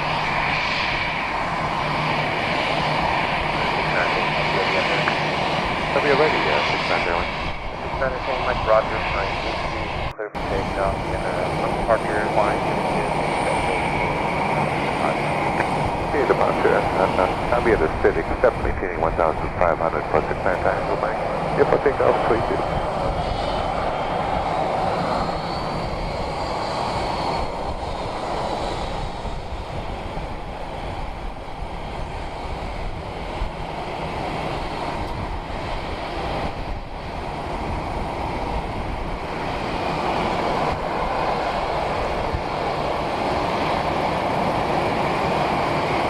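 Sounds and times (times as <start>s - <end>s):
faint high whine: 0.0s - 32.3s
airplane engine roar: 0.0s - 46.0s.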